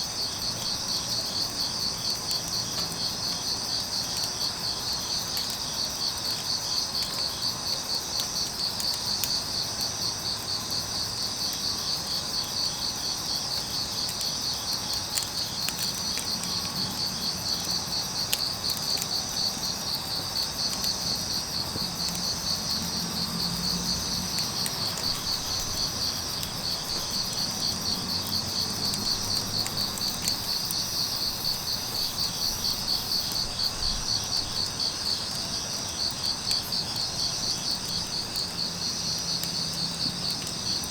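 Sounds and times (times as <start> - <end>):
insects trilling: 0.0 - 40.9
wood fire crackling: 0.0 - 40.9
insect pulsed call: 21.5 - 38.5.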